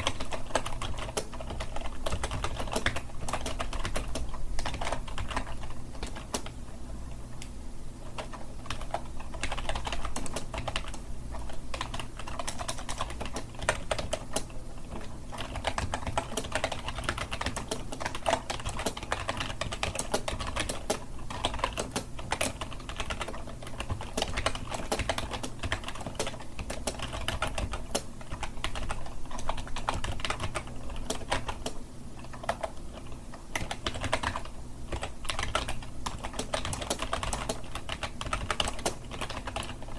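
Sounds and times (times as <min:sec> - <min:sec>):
computer keyboard typing: 0:00.0 - 0:06.6, 0:08.0 - 0:39.9.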